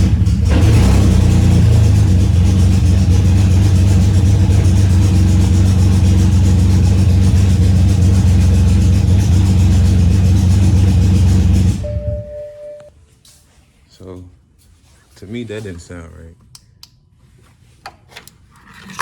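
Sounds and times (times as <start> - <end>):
car engine running: 0.0 - 12.9.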